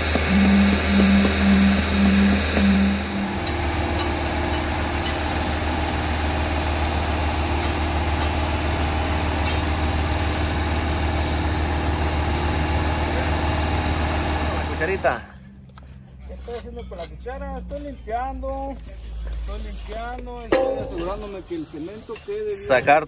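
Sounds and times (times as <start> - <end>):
truck engine humming: 0.0 - 16.2.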